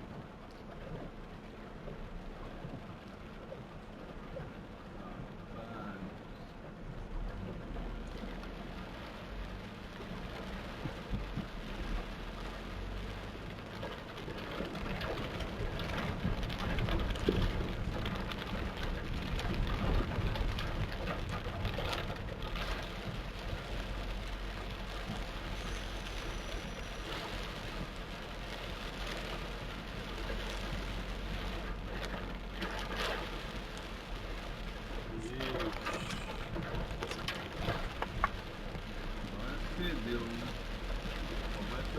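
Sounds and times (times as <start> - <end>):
torrential rain pouring: 0.0 - 41.9.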